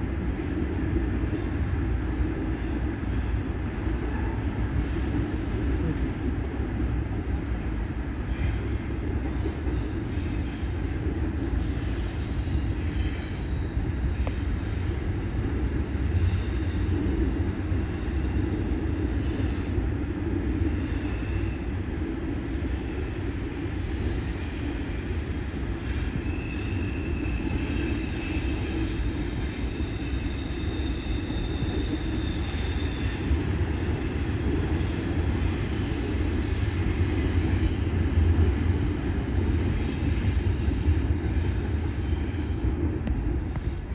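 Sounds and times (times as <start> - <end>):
train rumbling on track: 0.0 - 43.9
high-pitched wheel squeals: 26.1 - 33.6.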